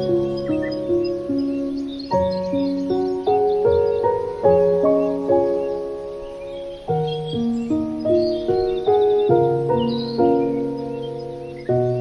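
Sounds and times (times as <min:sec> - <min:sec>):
calm slow melody: 0:00.0 - 0:12.0
faint high chirping notes: 0:00.0 - 0:12.0.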